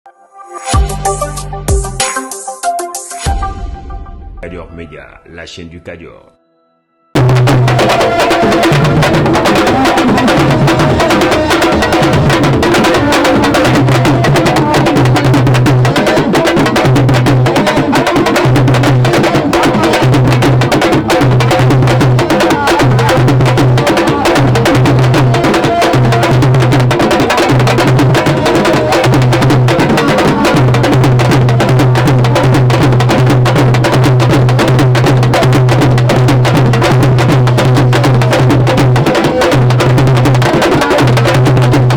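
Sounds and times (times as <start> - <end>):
low note: 3.2 - 7.3
dense drumming and percussion: 7.2 - 41.9.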